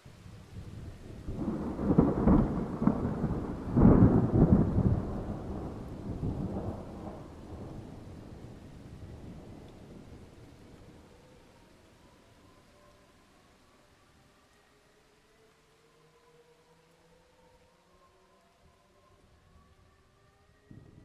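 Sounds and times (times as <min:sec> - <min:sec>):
thunder rumbling: 0:00.6 - 0:12.0, 0:20.7 - 0:21.0.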